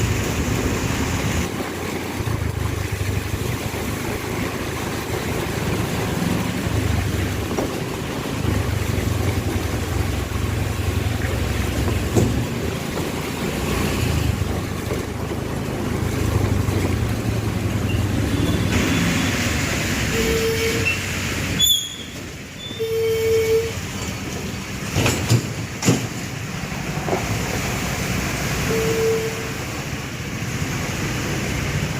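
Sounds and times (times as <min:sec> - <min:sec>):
steady low street rumble: 0:00.0 - 0:31.9
sharp knocks: 0:11.8 - 0:13.3, 0:24.9 - 0:26.3
car horn: 0:20.1 - 0:23.8, 0:28.6 - 0:29.7.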